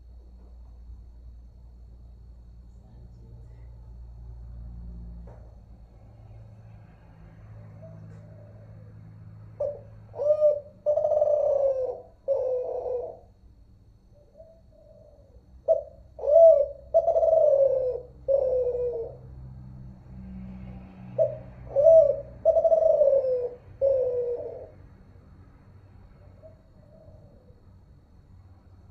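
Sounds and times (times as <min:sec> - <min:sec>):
faint low hum: 0:00.0 - 0:28.9
dove cooing: 0:07.3 - 0:19.4, 0:21.0 - 0:25.0, 0:26.2 - 0:27.8.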